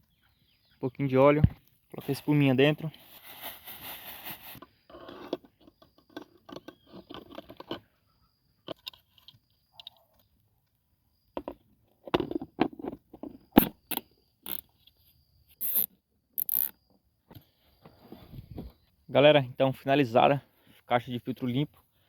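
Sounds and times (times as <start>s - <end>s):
rustling and scraping of parts: 2.8s - 7.8s, 17.3s - 18.9s.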